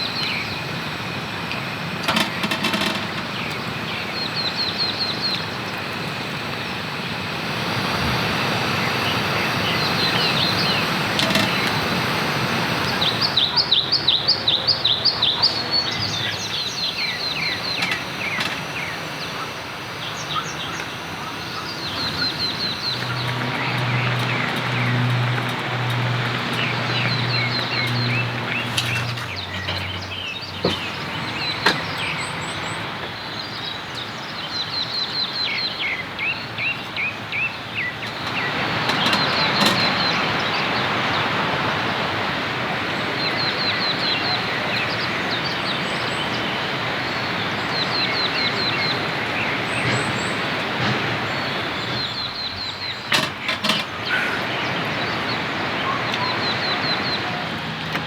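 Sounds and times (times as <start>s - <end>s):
birds chirping: 0.0s - 58.0s
rain falling: 14.5s - 32.4s.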